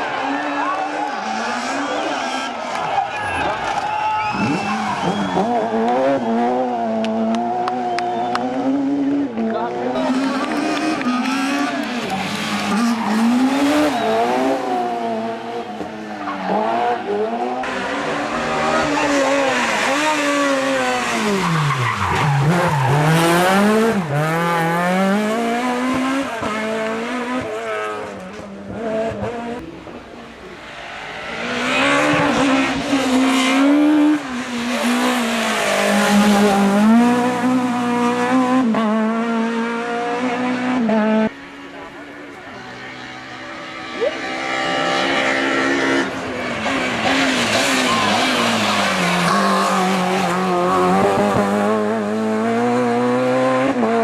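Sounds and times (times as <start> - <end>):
rally car engines revving: 0.0 - 54.0
car passing by: 10.0 - 28.2.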